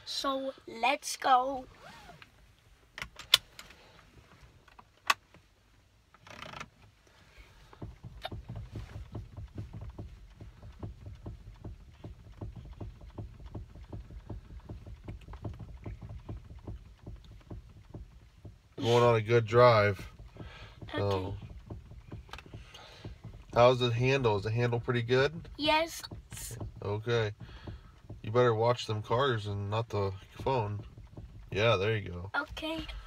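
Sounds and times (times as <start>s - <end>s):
car engine idling: 6.9s - 33.0s.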